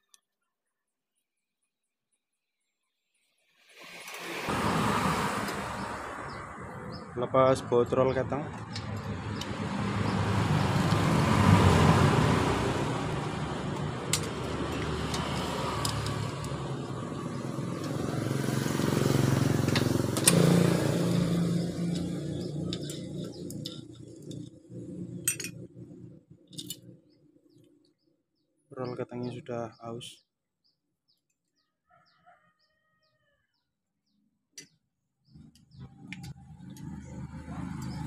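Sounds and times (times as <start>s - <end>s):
road vehicles passing: 3.7s - 27.8s, 35.3s - 38.0s.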